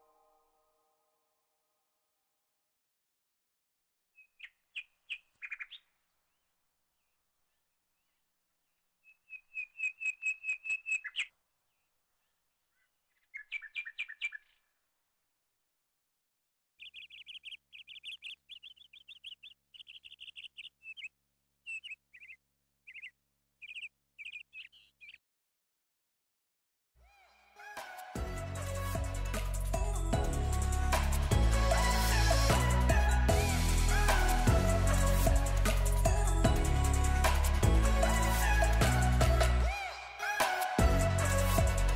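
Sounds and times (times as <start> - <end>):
bird chirping rapidly: 9.0 - 11.3, 13.1 - 14.6, 16.8 - 25.2.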